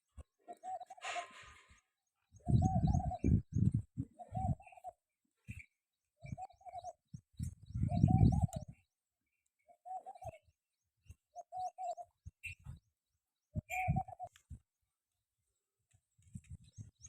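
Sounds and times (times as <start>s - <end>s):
small birds chirping: 0.0s - 17.0s
pigeons cooing: 0.4s - 5.6s, 6.2s - 7.0s, 7.7s - 8.8s.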